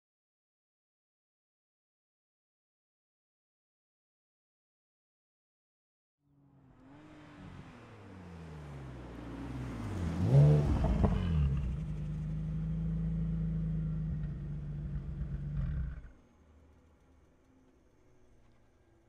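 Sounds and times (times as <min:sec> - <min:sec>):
car engine revving: 0:06.3 - 0:16.8.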